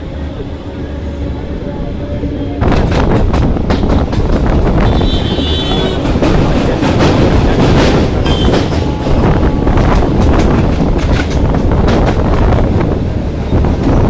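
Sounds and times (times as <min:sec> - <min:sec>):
train rumble: 0:00.0 - 0:14.0
wind buffeting microphone: 0:00.4 - 0:14.0
wheels clattering over rail joints: 0:02.7 - 0:12.7.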